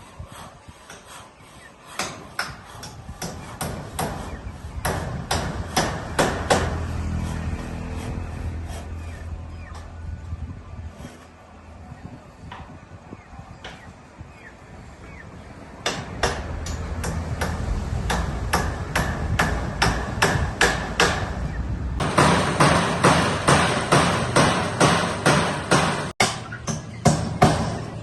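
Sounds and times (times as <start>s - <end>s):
hammer driving nails: 1.9s - 6.8s, 22.0s - 27.9s.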